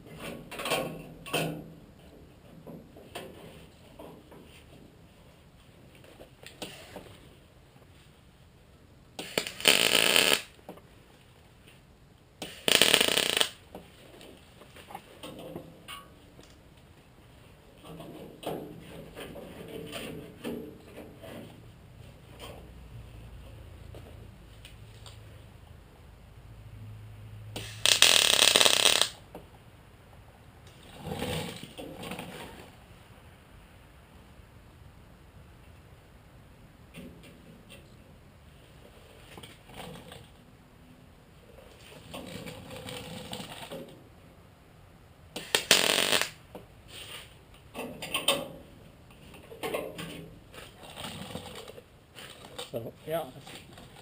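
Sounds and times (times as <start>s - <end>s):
low electrical hum: 0.0s - 54.0s
welding bursts: 9.2s - 10.6s, 12.4s - 13.6s, 27.6s - 29.2s, 45.4s - 46.4s.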